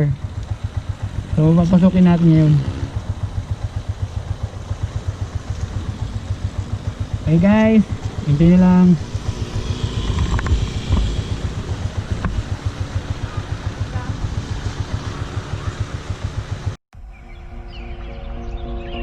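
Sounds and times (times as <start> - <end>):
motorcycle engine putter: 9.0 - 13.6
wind on microphone: 9.0 - 18.6.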